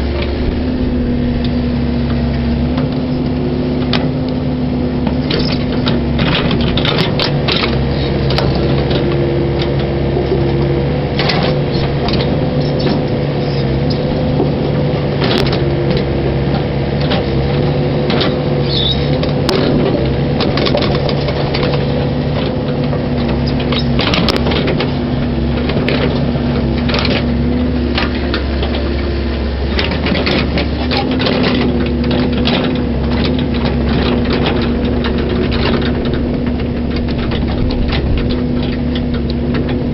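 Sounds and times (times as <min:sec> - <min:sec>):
excavator diesel engine running: 0:00.0 - 0:39.9
machine clanks and knocks: 0:01.4 - 0:39.9.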